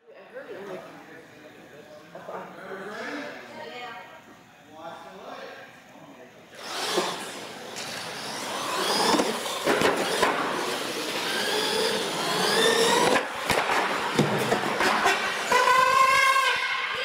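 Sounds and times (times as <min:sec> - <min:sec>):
toy truck motors whining: 0:06.6 - 0:13.4, 0:14.7 - 0:17.0.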